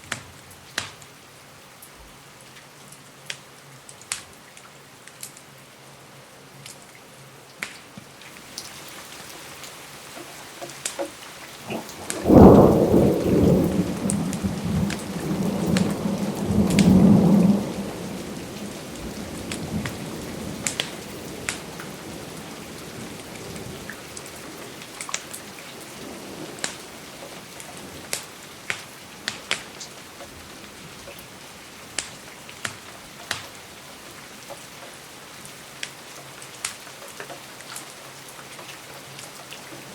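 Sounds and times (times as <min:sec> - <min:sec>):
steady rain: 0:00.0 - 0:39.9
rumbling thunderclap: 0:11.6 - 0:23.9.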